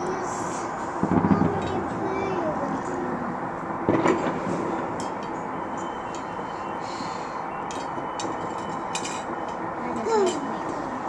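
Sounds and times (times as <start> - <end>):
city street traffic hum: 0.0 - 11.0
firecracker bang: 0.3 - 3.0, 3.7 - 5.7.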